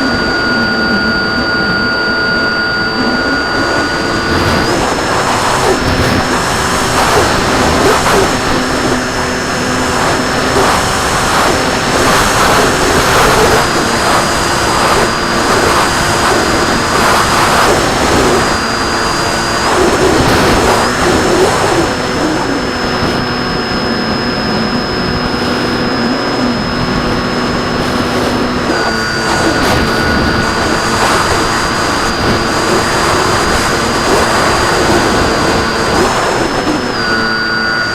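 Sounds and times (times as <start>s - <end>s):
model plane motor whine: 0.0s - 37.9s
rushing air: 0.0s - 37.9s.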